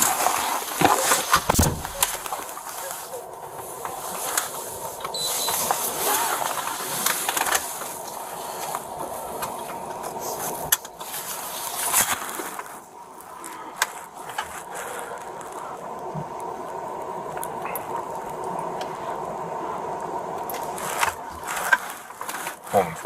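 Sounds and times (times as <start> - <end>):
rustling handling noise: 0.0 - 19.4, 20.0 - 23.0.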